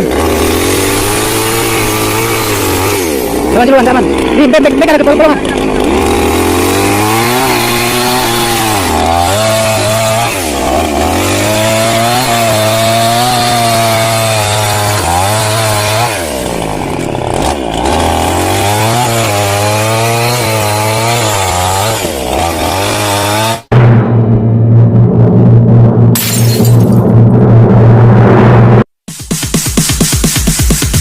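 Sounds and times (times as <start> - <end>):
small engine running: 0.0 - 9.4.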